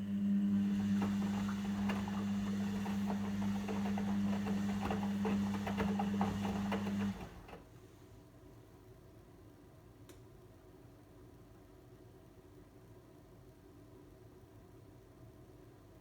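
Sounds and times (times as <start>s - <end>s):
washing machine humming: 0.0s - 7.7s.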